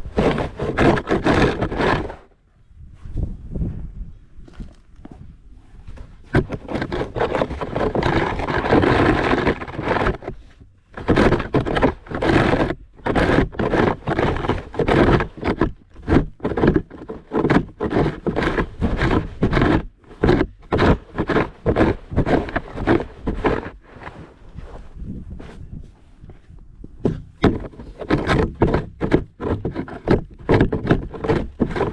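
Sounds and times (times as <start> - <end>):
shovel crunching snow: 0.0 - 2.3, 6.4 - 24.9, 27.5 - 31.9
snow shovel scraping: 0.0 - 2.3, 6.4 - 25.6, 27.4 - 31.9.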